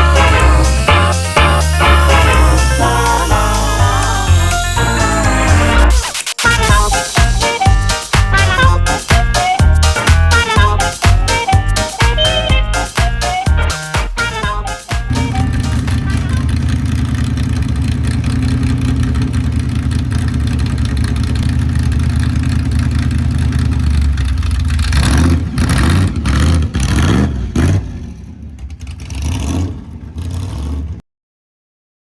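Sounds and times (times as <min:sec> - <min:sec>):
car engine revving: 0:15.4 - 0:20.5, 0:24.2 - 0:30.9.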